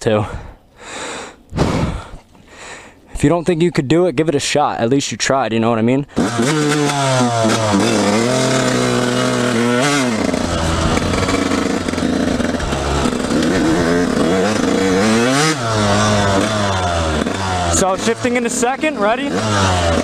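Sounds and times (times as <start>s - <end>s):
dirt bike engine revving: 6.1s - 20.0s.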